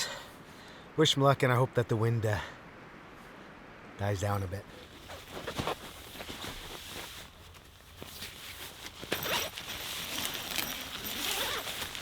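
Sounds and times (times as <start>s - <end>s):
fabric rustling: 4.7s - 12.0s
zipper being pulled: 8.9s - 12.0s.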